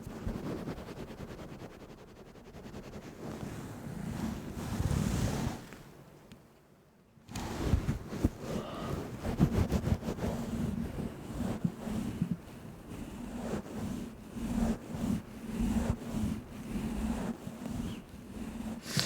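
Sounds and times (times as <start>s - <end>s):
rustling against microphone: 7.4s - 19.0s.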